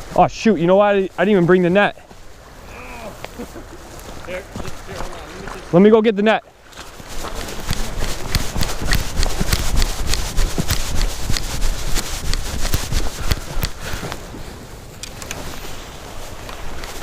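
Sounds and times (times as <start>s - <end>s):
hurried footsteps on hard ground: 3.2s - 6.0s, 6.6s - 14.6s.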